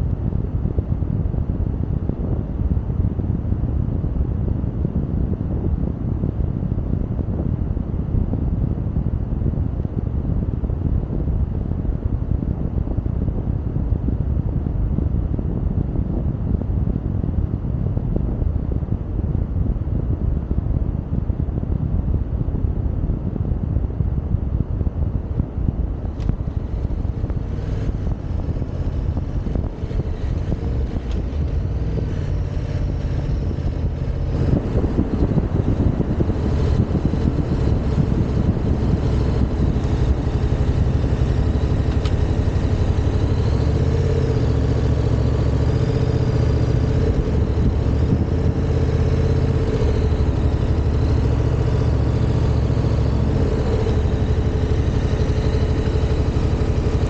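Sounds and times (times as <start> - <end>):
motorcycle engine running: 24.6 - 57.0.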